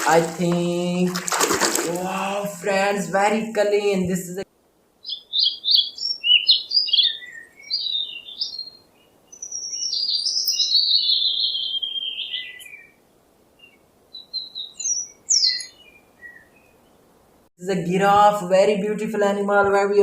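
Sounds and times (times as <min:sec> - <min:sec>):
songbird singing: 0:05.0 - 0:13.0, 0:13.6 - 0:17.2.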